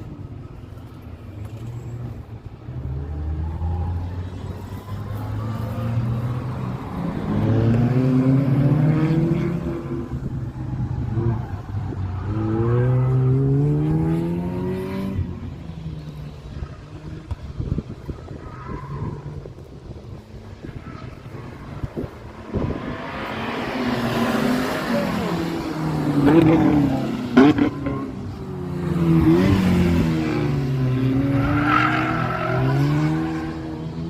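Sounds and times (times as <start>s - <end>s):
sports car engine accelerating: 22.5s - 34.0s.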